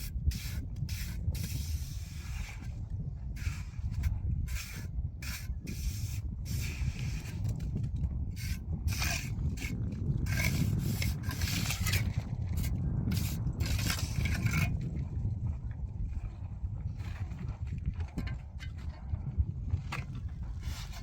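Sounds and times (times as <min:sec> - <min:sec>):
scraping and rubbing strokes: 0:00.0 - 0:02.8, 0:03.4 - 0:14.9, 0:20.0 - 0:21.0
steady low rumble: 0:00.0 - 0:21.0.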